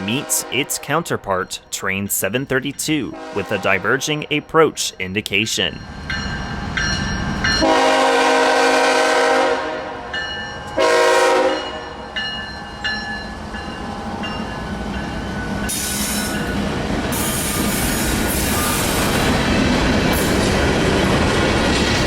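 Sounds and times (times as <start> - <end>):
locomotive air horn: 0.0 - 1.0, 3.1 - 4.1, 7.6 - 10.1, 10.8 - 11.9
train rolling by: 0.0 - 9.4, 10.0 - 22.0.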